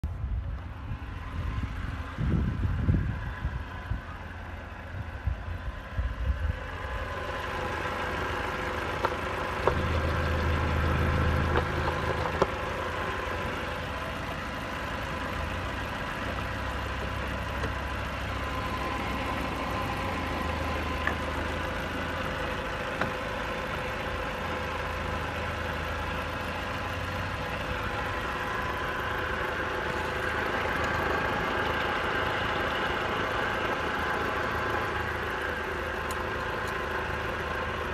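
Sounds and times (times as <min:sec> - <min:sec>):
car engine idling: 0:00.0 - 0:37.9
wind buffeting microphone: 0:01.4 - 0:04.1.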